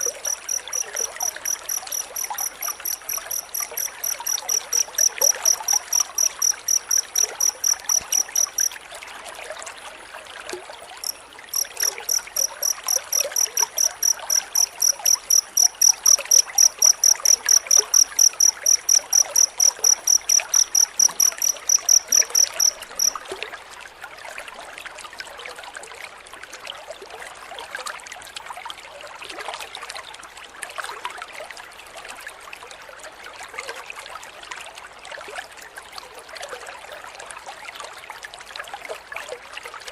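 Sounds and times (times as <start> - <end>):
cricket chirping: 0.0 - 8.8, 11.0 - 23.2.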